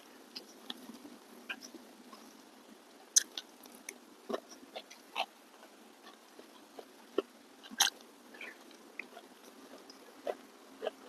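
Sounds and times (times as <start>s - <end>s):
wet chewing and lip-smacking: 3.2s - 11.0s.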